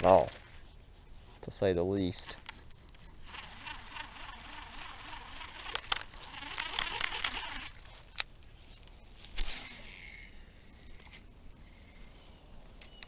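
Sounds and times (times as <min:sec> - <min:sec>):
fishing reel whirring: 0:03.1 - 0:07.9, 0:09.3 - 0:12.0
sharp clicks: 0:05.4 - 0:08.4.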